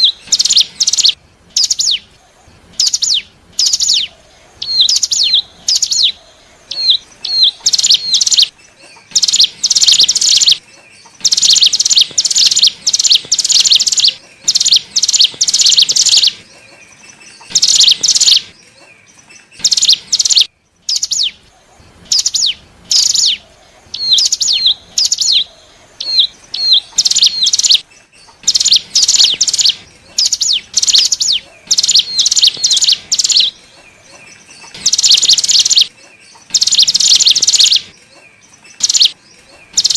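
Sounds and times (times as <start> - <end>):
bird singing rapid trills: 0.0 - 39.9.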